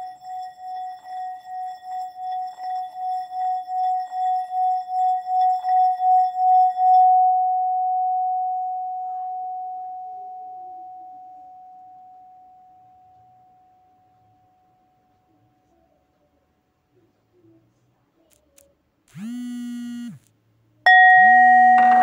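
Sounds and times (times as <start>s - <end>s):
singing bowl ringing tone: 0.0s - 14.0s, 20.9s - 22.0s.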